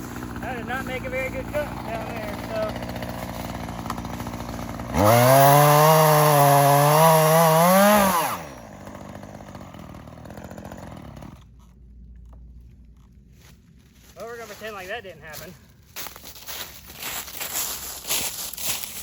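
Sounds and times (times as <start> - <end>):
chainsaw engine revving: 0.0 - 11.5.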